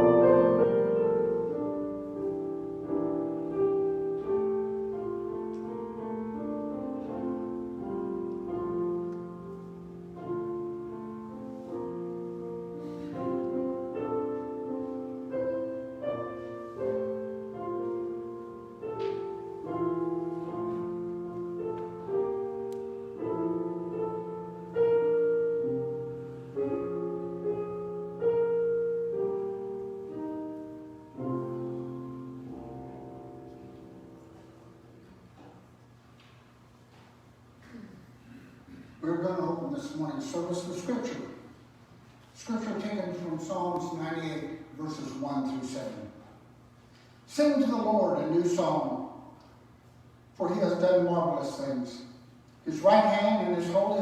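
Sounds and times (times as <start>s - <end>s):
slow solo piano chords: 0.0s - 35.9s.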